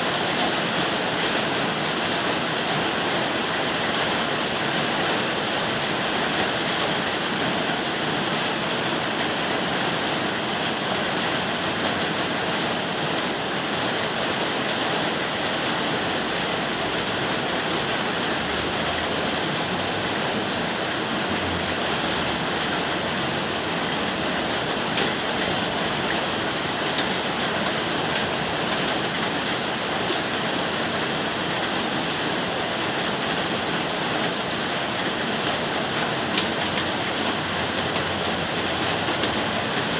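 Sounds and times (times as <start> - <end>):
steady rain hissing: 0.0 - 39.9
raindrop ticks: 35.4 - 39.9.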